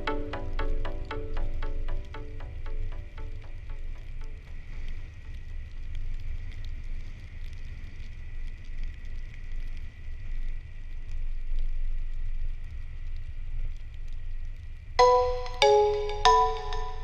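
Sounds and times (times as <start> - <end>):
faint high whine: 0.0 - 8.7, 15.0 - 17.0.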